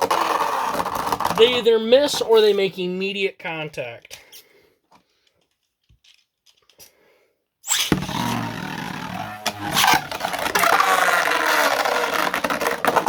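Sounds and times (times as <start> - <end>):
tops spinning and scraping: 0.0 - 2.2, 7.7 - 13.0.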